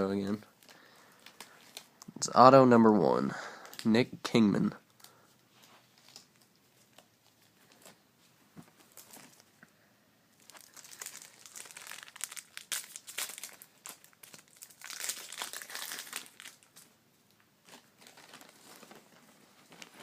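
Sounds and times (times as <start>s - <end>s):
foil wrapper crinkling: 10.4s - 16.9s, 17.6s - 20.0s.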